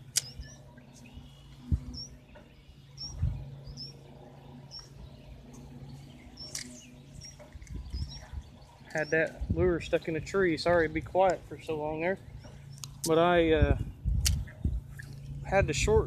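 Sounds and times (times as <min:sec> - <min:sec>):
small bird chirping: 0:00.0 - 0:10.7, 0:11.3 - 0:13.2
faint low hum: 0:00.0 - 0:16.0
low thumps: 0:01.6 - 0:03.8.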